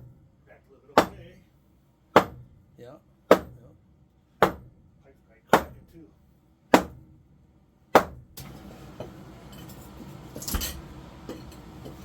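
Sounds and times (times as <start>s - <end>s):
hammer striking concrete: 1.0s - 1.2s, 2.2s - 2.5s, 3.3s - 3.6s, 4.4s - 4.7s, 5.5s - 5.9s, 6.8s - 7.0s, 8.0s - 8.2s
metal clinking on broken concrete: 9.5s - 11.7s.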